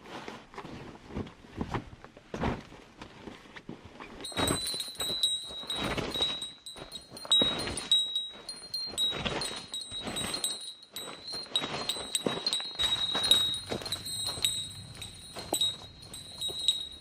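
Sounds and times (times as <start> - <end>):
footsteps: 4.2 - 17.0
small bell jingling: 4.2 - 17.0.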